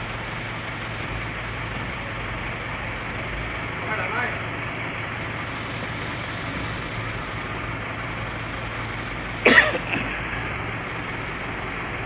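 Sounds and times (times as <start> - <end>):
person coughing: 9.4 - 10.2.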